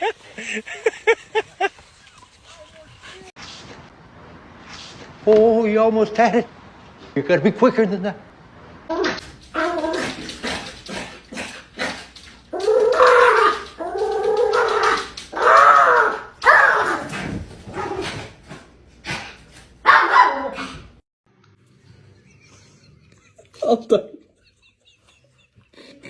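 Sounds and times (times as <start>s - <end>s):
dog howling: 9.4s - 10.5s, 12.5s - 17.2s.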